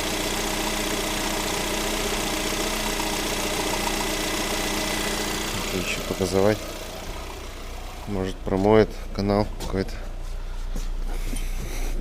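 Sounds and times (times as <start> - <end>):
fast even engine ticking: 0.0 - 9.6
car engine idling: 0.0 - 12.0.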